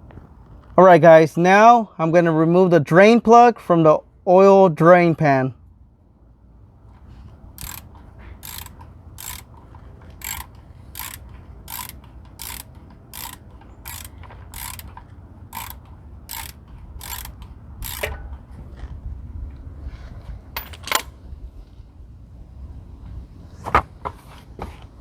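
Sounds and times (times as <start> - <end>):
ratchet pawl clicking: 7.6 - 18.3.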